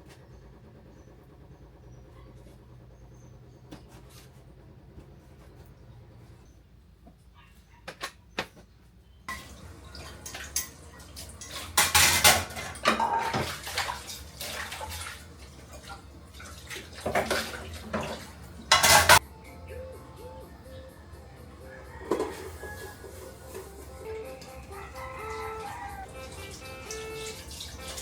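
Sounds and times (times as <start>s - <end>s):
dishes and cutlery clattering: 9.3s - 15.0s, 17.0s - 19.2s, 21.9s - 23.7s
water splashing: 9.3s - 19.1s, 25.2s - 28.0s.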